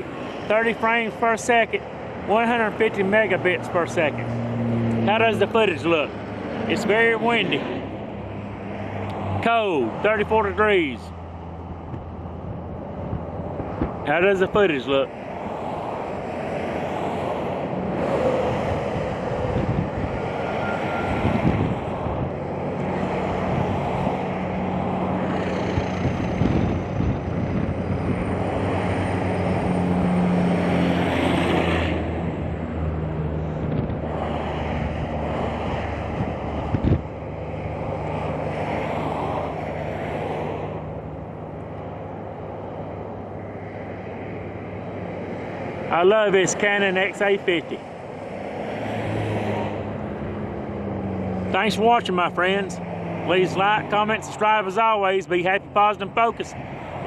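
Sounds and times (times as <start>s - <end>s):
highway traffic passing: 0.0s - 57.0s
wind buffeting microphone: 11.7s - 14.1s, 15.4s - 30.4s, 31.5s - 39.8s.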